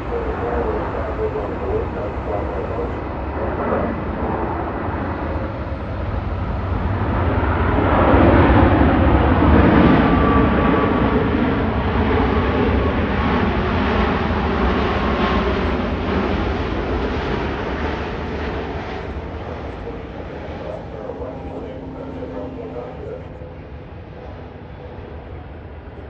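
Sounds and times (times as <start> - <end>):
jet airliner engines landing: 0.0 - 26.0.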